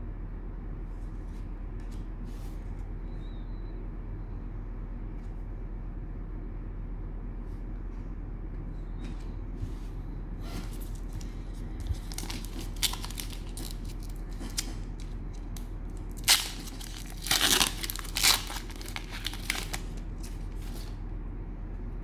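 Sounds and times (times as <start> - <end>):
cellophane wrapper crinkling and tearing: 10.7 - 21.0.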